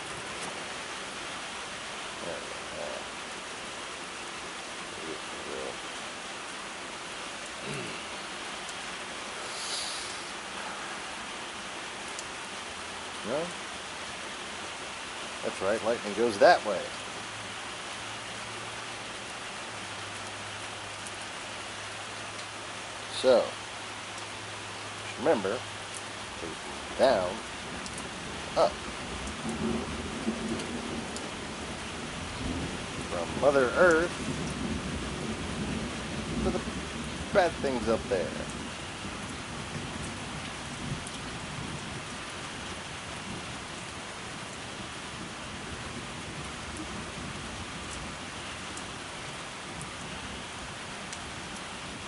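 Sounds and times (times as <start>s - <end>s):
rain drop ticks: 0.0s - 1.3s, 2.1s - 52.0s
steady rain falling: 0.0s - 52.0s.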